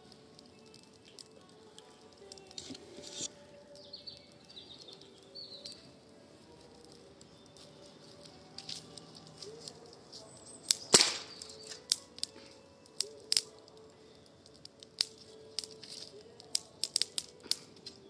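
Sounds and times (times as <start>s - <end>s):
campfire wood crackling: 0.0s - 18.0s
sharp fire pops: 6.7s - 18.0s.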